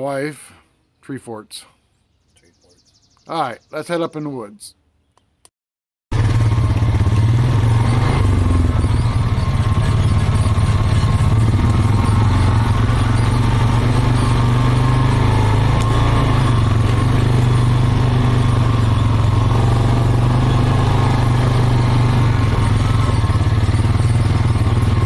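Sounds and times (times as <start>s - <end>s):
atv engine running: 6.1s - 25.0s.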